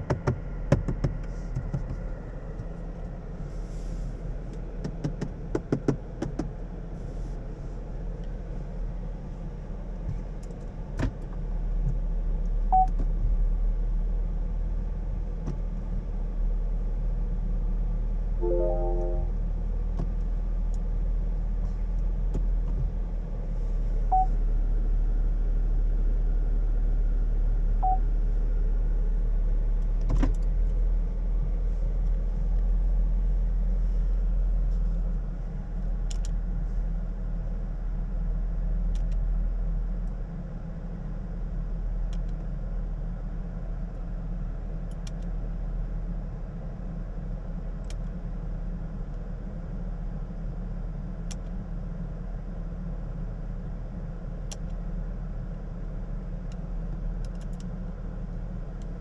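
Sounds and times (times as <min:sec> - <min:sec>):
short electronic beeps: 0:18.4 - 0:19.3
stepped chime tones: 0:18.4 - 0:19.3.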